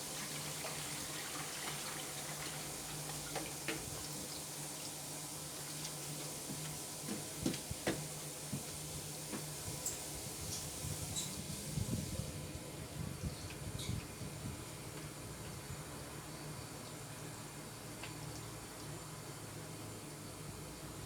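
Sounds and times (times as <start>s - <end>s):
water running from a tap: 0.0s - 12.1s.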